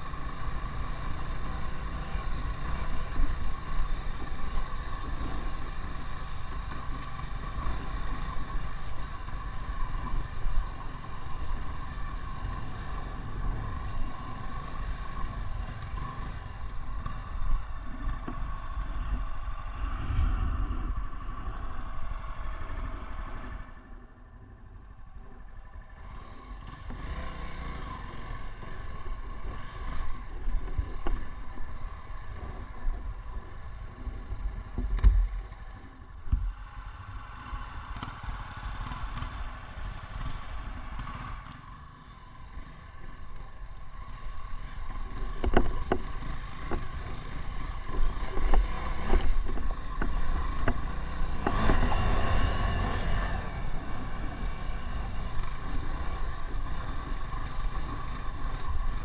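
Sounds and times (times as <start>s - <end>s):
motorcycle engine revving: 25.4s - 59.0s
knocks and clatter over stones: 45.2s - 47.0s.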